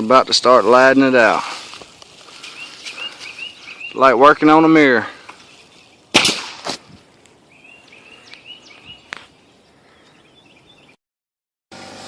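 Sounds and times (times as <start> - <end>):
bird chirping: 2.3 - 6.1, 7.4 - 11.0.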